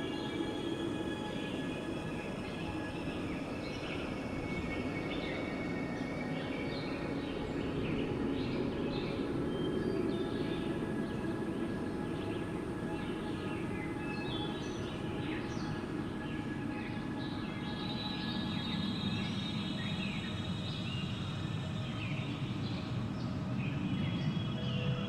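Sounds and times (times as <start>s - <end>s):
soft tonal drone: 0.0s - 25.0s
steady wind: 0.0s - 25.0s.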